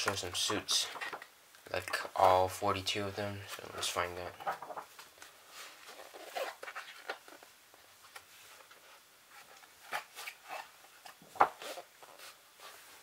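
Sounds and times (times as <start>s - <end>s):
book pages turning: 3.5s - 12.8s.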